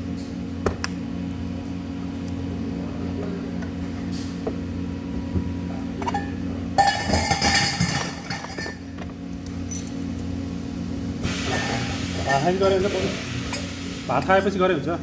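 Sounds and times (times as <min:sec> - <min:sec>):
electrical hum of machinery: 0:00.0 - 0:15.0
metal clinking and ringing: 0:06.0 - 0:08.9, 0:09.6 - 0:10.0.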